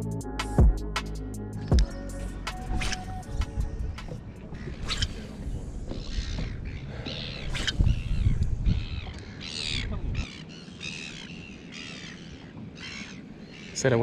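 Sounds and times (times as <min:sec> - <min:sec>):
birds cawing: 0:04.4 - 0:14.0.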